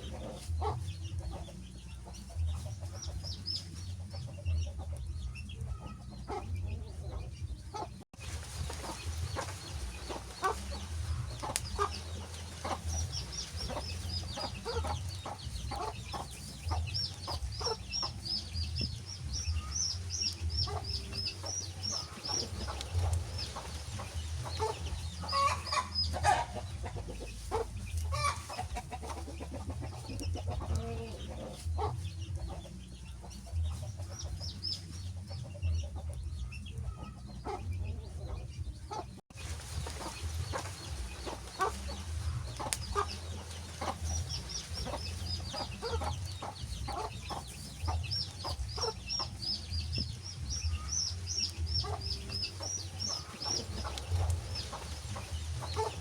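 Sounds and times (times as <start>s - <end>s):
wood fire crackling: 8.2s - 25.2s, 39.3s - 45.4s, 47.5s - 56.0s
bird chirping: 39.8s - 56.0s.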